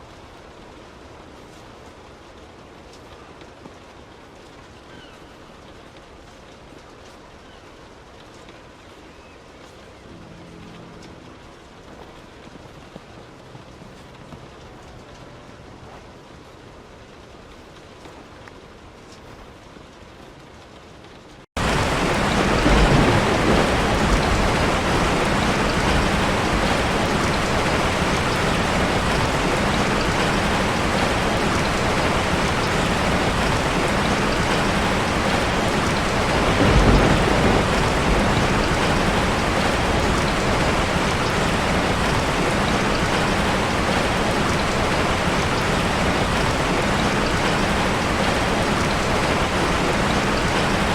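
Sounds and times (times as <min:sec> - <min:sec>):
heavy rain: 0:00.0 - 0:50.9
distant thunder rumbling: 0:21.6 - 0:50.9.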